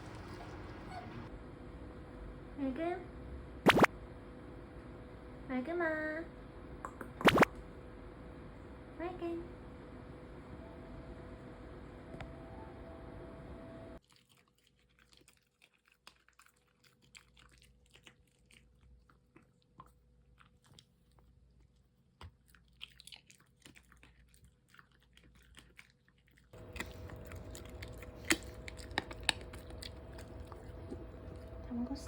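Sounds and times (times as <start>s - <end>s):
dog chewing and crunching food: 14.0s - 32.0s.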